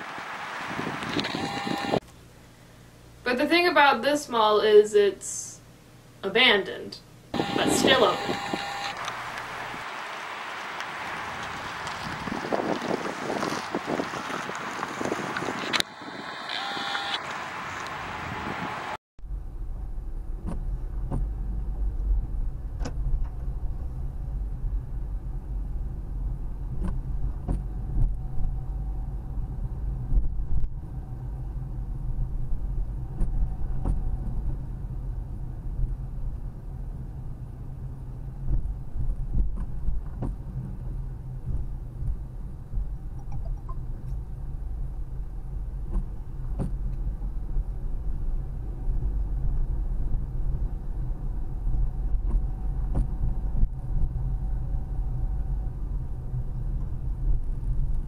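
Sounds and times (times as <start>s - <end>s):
road noise inside moving car: 0.0s - 2.0s, 11.0s - 58.0s.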